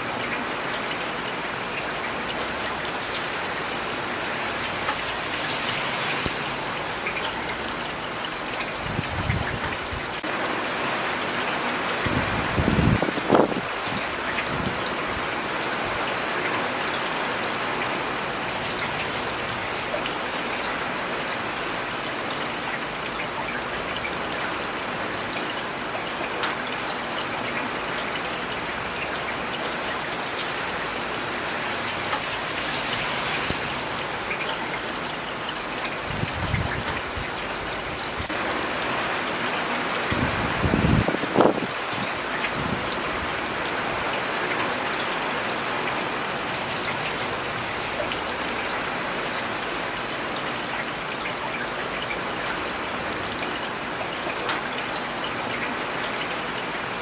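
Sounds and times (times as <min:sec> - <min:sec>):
rain on hard surfaces: 0:00.0 - 0:57.0.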